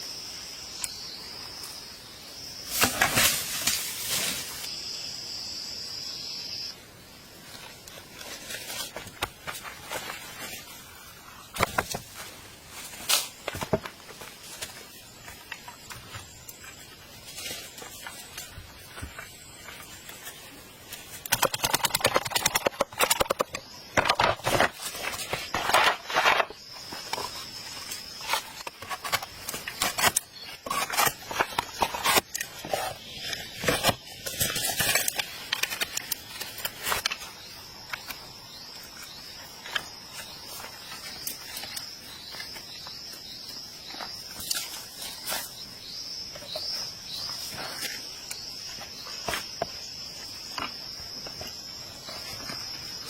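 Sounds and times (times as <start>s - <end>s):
crickets droning: 0.0s - 53.0s
rapid crackling and scraping: 7.5s - 43.2s.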